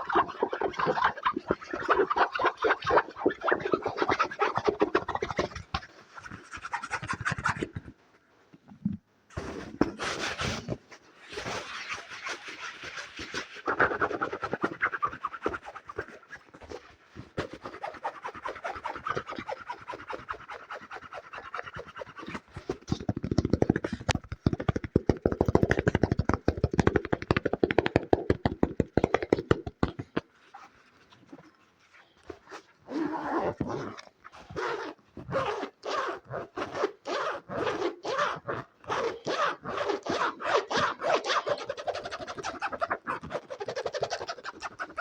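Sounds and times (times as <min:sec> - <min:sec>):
asmr tapping and scratching: 0:21.2 - 0:30.3, 0:38.9 - 0:45.0.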